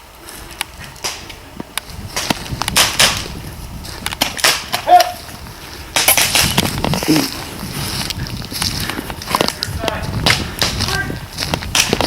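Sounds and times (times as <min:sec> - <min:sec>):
airsoft guns firing: 0:02.2 - 0:03.3, 0:05.9 - 0:06.6.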